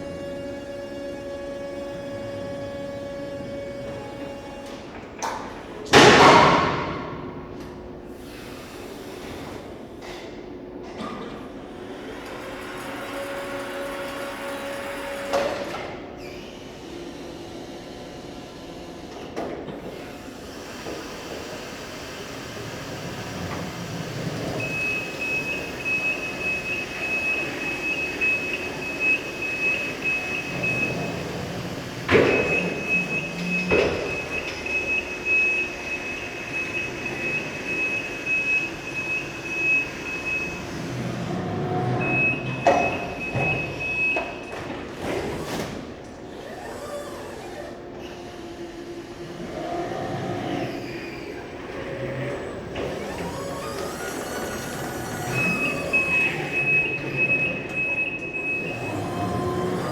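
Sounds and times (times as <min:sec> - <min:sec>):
rapid high-pitched warning beeps: 0:24.6 - 0:31.3, 0:55.3 - 0:59.3.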